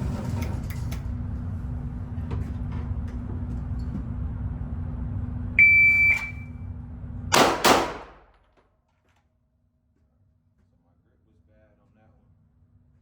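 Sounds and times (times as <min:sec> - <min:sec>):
steady low hum: 0:00.0 - 0:08.4
shot timer beep: 0:05.6 - 0:06.5
pistol shots: 0:07.3 - 0:08.4.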